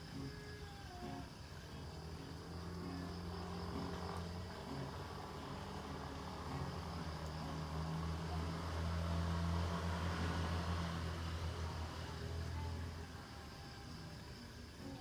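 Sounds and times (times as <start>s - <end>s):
passing engine hum: 5.7s - 13.0s.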